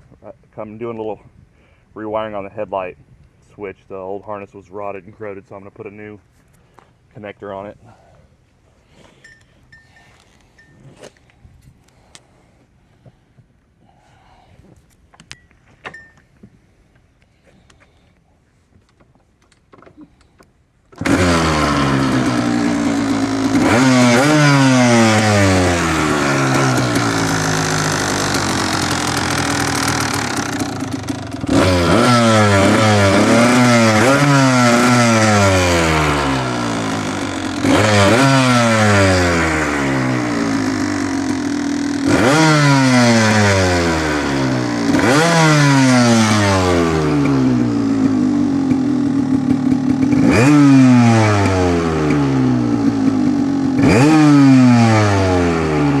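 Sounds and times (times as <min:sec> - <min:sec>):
two-stroke engine revving: 0:21.0 - 0:56.0.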